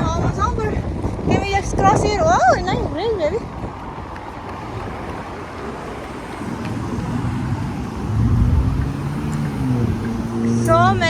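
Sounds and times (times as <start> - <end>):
city traffic noise: 0.0 - 11.0
engine passing close by: 4.0 - 11.0.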